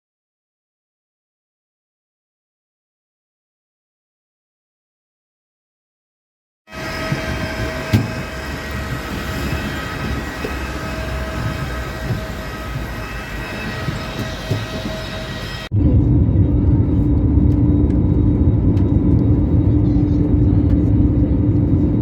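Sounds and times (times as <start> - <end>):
constant whine: 6.7 - 22.0
vehicle running rumble: 6.7 - 22.0.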